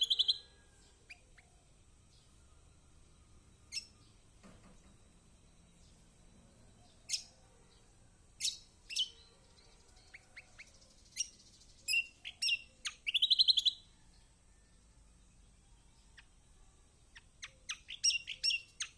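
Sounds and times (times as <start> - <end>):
bird high sharp calls: 0.0 - 0.5
loud rapid bird trill: 0.0 - 0.5
faint bird chirps: 0.0 - 18.9.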